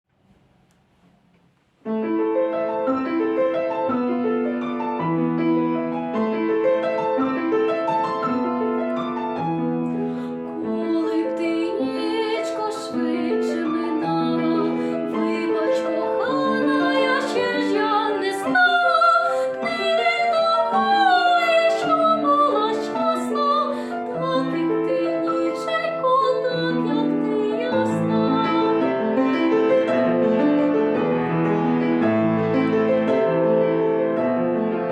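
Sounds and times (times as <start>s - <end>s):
piano accompaniment: 1.8s - 34.9s
woman singing with vibrato: 10.4s - 29.1s.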